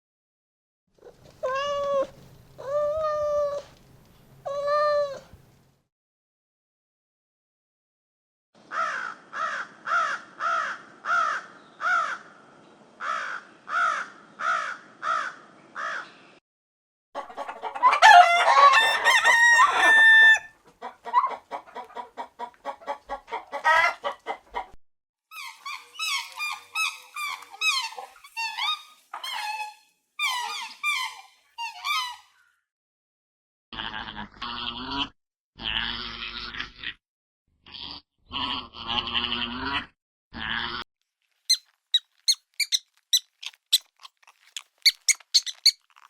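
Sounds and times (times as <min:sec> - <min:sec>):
chickens clucking: 0:17.2 - 0:24.7
rooster crowing: 0:17.8 - 0:20.6
high fast chirping calls: 0:41.5 - 0:43.9, 0:44.5 - 0:45.9.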